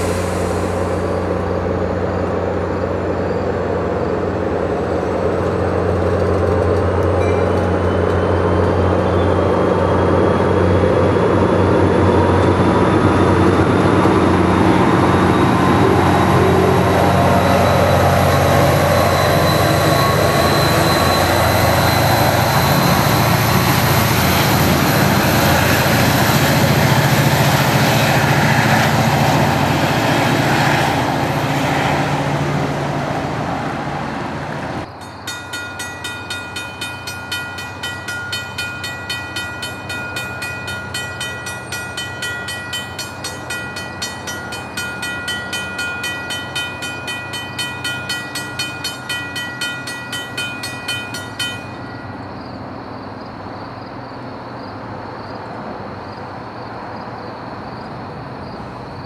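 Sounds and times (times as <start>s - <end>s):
diesel locomotive running loudly: 0.0s - 59.0s
grade-crossing bell ringing: 6.7s - 10.3s, 11.7s - 24.0s, 34.8s - 52.6s.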